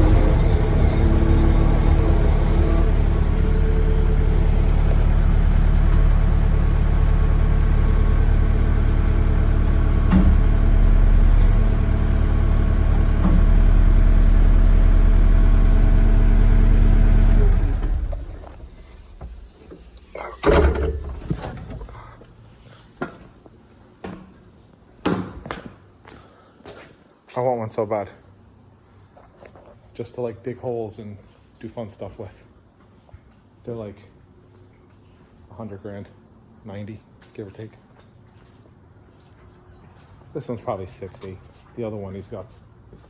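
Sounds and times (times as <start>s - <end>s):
skid steer engine running: 0.0s - 19.6s.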